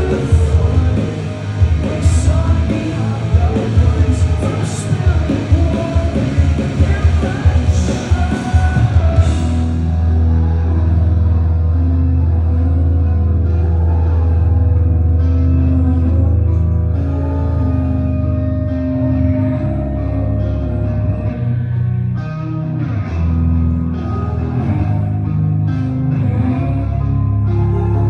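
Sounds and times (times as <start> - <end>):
live rock band playing: 0.0 - 12.2
person singing: 0.0 - 21.6, 23.7 - 28.0
distorted electric guitars and bass: 0.0 - 28.0.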